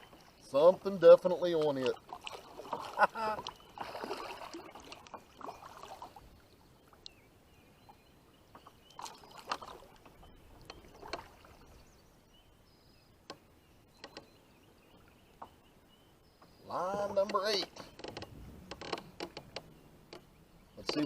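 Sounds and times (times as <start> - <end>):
paddle splashes: 0.0 - 7.3, 7.9 - 12.1.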